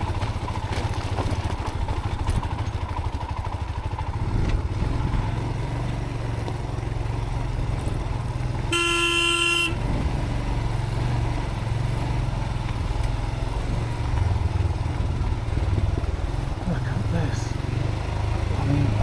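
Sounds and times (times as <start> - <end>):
motorcycle engine at low revs: 0.0 - 19.0
horn blast: 8.7 - 9.9.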